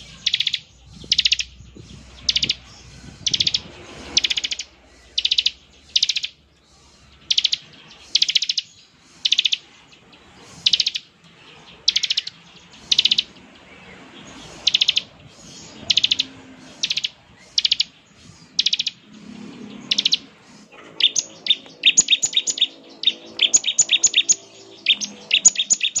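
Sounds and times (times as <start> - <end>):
bird buzzing trill calls: 0.0 - 6.4, 7.3 - 9.6, 15.8 - 20.3, 21.0 - 26.0.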